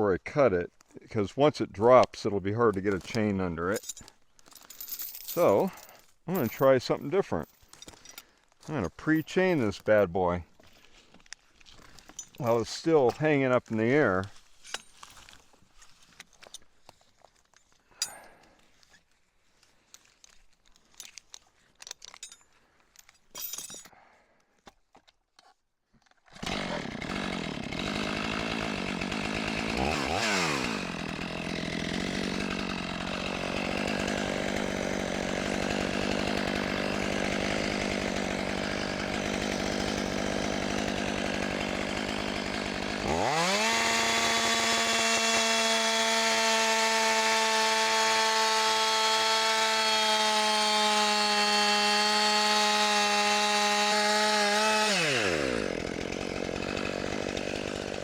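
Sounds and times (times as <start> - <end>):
chainsaw cutting log: 2.0 - 3.7, 26.2 - 58.0
faint clinks and knocks: 3.8 - 6.1, 19.9 - 24.0.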